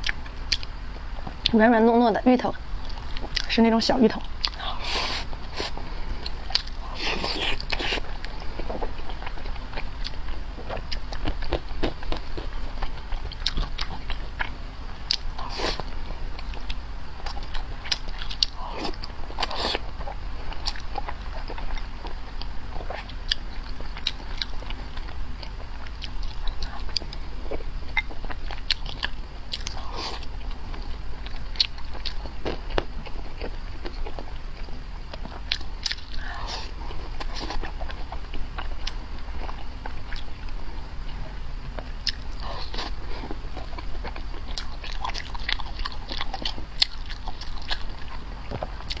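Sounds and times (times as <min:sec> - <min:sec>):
person biting and chewing: 0:04.4 - 0:14.5, 0:15.1 - 0:21.9.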